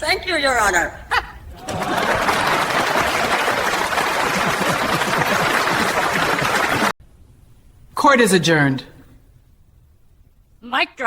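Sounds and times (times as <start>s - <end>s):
crowd laughing: 1.5s - 6.9s
crowd clapping: 1.6s - 7.0s.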